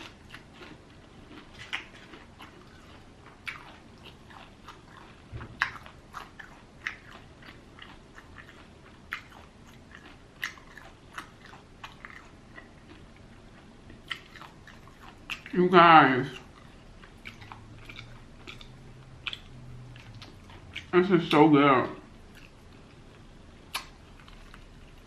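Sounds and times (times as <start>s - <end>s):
crunchy chewing: 0.0s - 21.4s, 22.2s - 25.0s.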